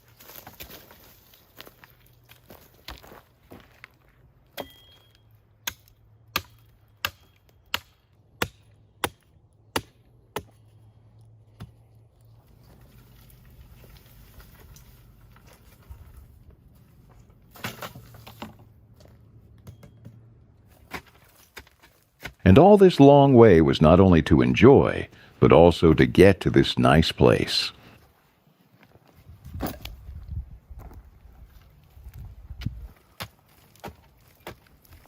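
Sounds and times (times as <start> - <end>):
blade chopping branches: 17.5 - 18.6.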